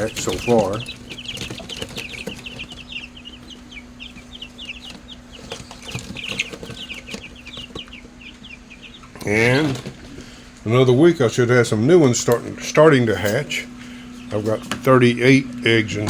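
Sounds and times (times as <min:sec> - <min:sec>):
chicks peeping: 0:00.0 - 0:16.0
faint steady hum: 0:00.0 - 0:16.0.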